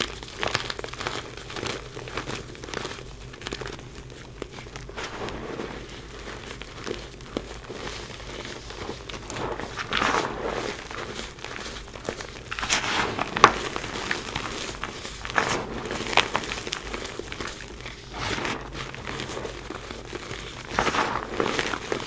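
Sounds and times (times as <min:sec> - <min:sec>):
chalk being crushed: 0:04.8 - 0:22.0.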